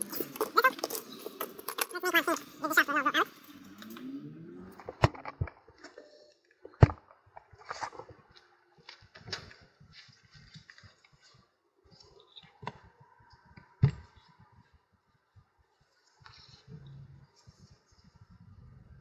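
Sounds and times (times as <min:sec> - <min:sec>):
clicks of parts and hand tools: 0:00.0 - 0:02.5.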